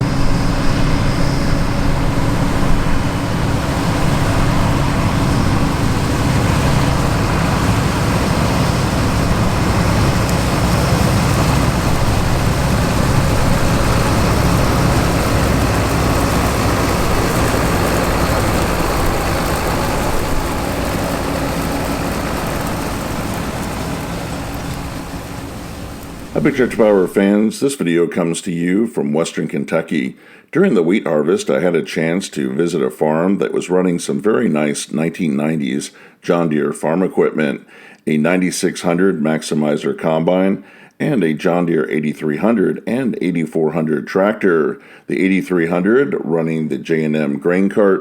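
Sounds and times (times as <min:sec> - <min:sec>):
diesel farm machinery engine drone: 0:00.0 - 0:27.2.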